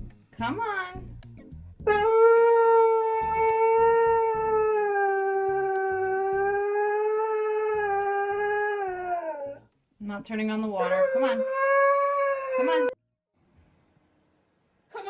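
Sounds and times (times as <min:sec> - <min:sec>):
husky howling: 0:01.9 - 0:09.6, 0:10.8 - 0:13.0.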